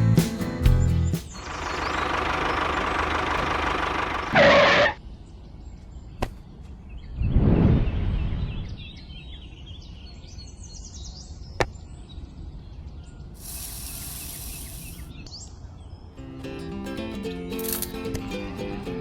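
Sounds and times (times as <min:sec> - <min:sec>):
birds chirping: 0:00.0 - 0:16.2
high hiss burst: 0:13.4 - 0:15.1.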